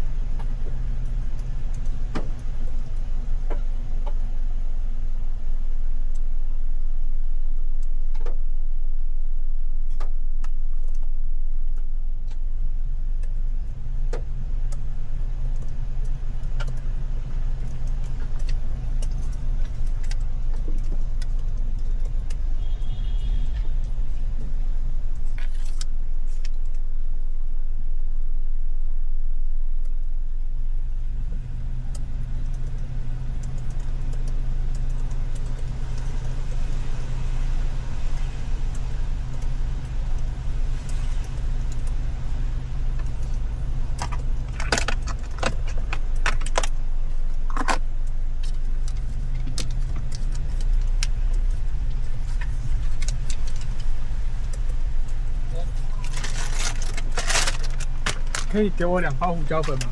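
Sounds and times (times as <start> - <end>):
car engine idling: 0.0 - 59.9
sharp clicks and rattles: 13.1 - 22.7, 31.8 - 37.2, 37.9 - 59.9
light ticks: 13.2 - 14.9, 15.5 - 16.9, 31.9 - 42.1.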